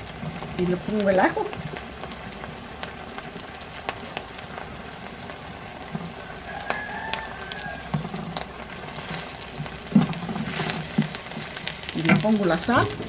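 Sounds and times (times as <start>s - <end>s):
vegetables sizzling in oil: 0.0s - 13.0s
wooden spatula scraping clay pot: 7.9s - 13.0s.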